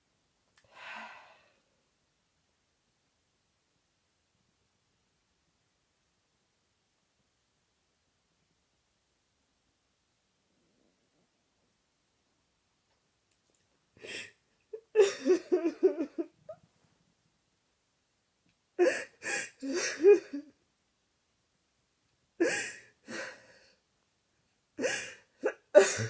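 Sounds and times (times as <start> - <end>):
person sobbing: 14.0 - 16.4, 18.8 - 20.5, 22.4 - 23.6, 24.8 - 26.0.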